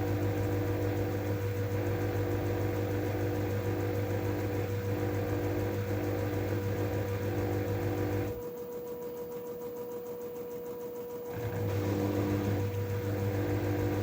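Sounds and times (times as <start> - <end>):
washing machine humming: 0.0 - 8.5, 11.3 - 14.0.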